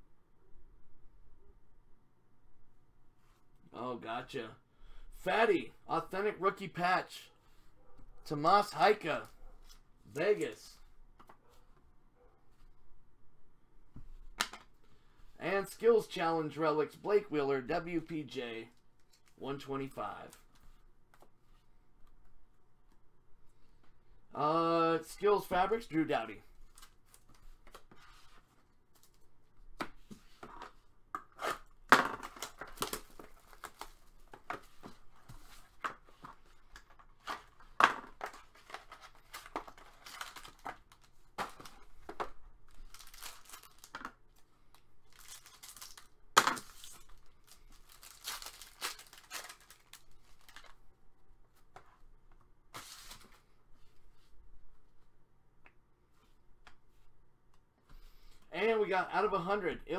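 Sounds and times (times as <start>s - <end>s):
packaging torn and crinkled: 38.4s - 41.2s, 42.7s - 44.0s, 45.0s - 50.8s.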